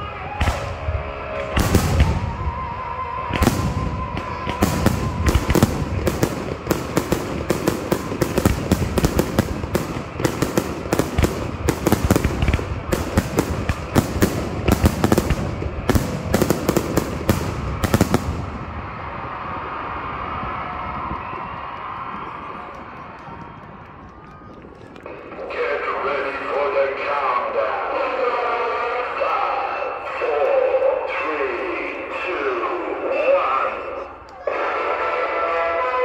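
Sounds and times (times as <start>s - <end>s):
firework shells bursting: 3.4s - 18.5s.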